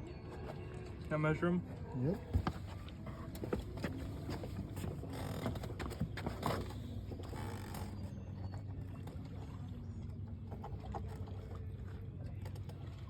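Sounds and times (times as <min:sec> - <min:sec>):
fish handling creaks and scrapes: 0:02.2 - 0:08.7.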